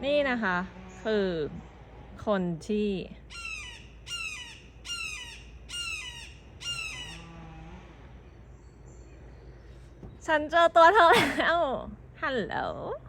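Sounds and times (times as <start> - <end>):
bird calling loudly: 3.3 - 7.5.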